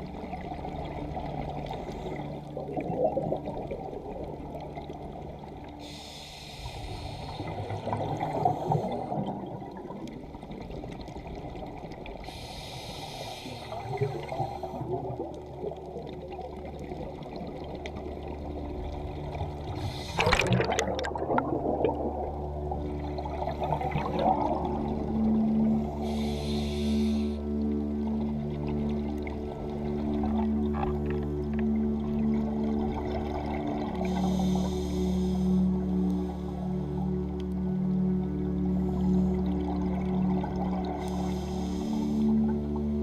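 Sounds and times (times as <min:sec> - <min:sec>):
air bubbles underwater: 0:02.5 - 0:04.9, 0:19.8 - 0:25.1
diver breathing through regulator: 0:05.8 - 0:09.5, 0:12.2 - 0:15.1, 0:19.7 - 0:20.6, 0:25.9 - 0:27.7, 0:34.0 - 0:36.8, 0:40.9 - 0:42.6.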